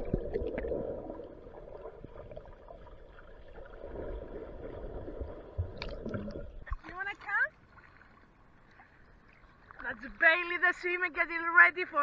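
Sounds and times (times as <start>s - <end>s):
underwater rushing and gurgling: 0.0s - 6.8s.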